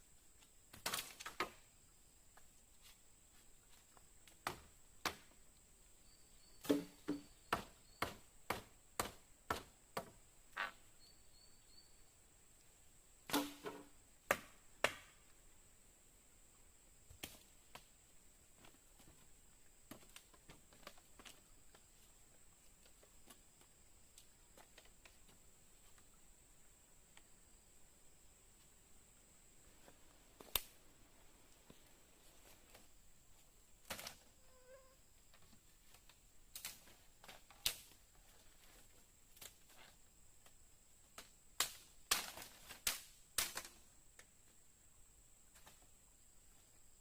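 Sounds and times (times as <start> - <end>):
sharp knocks or cracks: 13.3 - 15.1.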